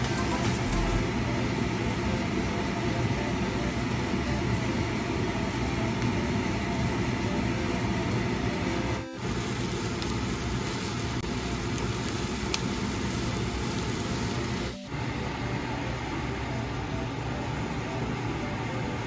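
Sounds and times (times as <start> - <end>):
onions sizzling in oil: 9.2 - 14.8.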